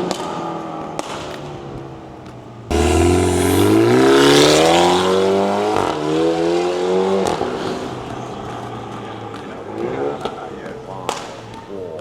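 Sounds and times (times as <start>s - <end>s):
car engine accelerating hard: 2.7s - 8.0s.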